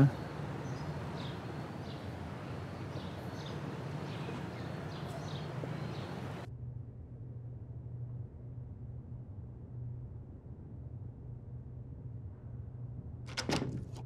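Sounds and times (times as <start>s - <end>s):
small birds chirping: 0.0s - 6.5s
low background hum: 0.0s - 14.0s.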